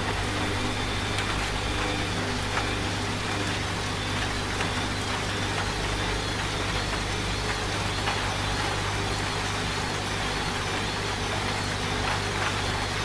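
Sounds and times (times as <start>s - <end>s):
washing machine humming: 0.0s - 13.0s.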